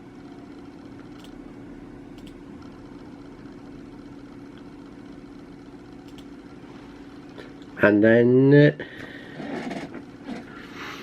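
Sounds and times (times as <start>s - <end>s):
steady mechanical hum: 0.0s - 11.0s
faint clicks: 2.2s - 2.4s, 6.0s - 6.3s.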